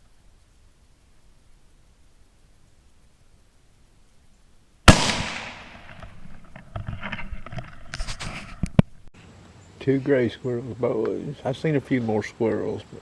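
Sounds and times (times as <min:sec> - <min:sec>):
rustling: 0:00.0 - 0:09.1
rifle shot: 0:04.9 - 0:06.4.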